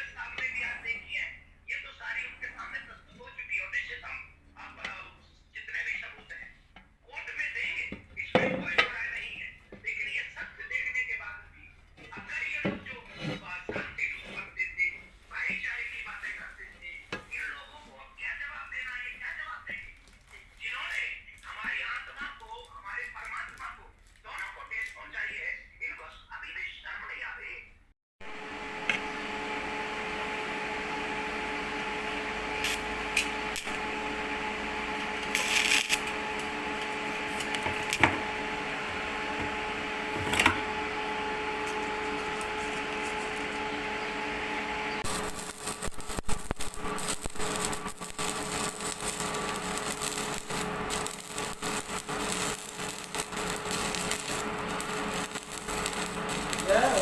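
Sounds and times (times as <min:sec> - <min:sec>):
steady hum: 0:28.2 - 0:57.0
electric arc welding crackling: 0:30.3 - 0:57.0.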